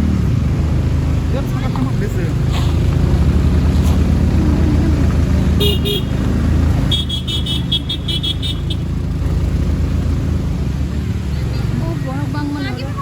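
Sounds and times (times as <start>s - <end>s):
vehicle engine rumbling: 0.0s - 13.0s
vehicle horn beeping: 5.6s - 8.9s.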